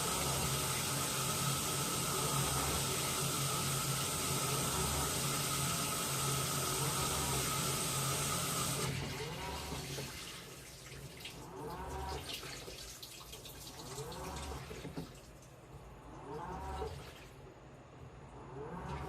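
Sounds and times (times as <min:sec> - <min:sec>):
water running into washing machine: 0:00.0 - 0:17.5, 0:18.6 - 0:19.0
water sloshing and dripping: 0:06.9 - 0:17.5.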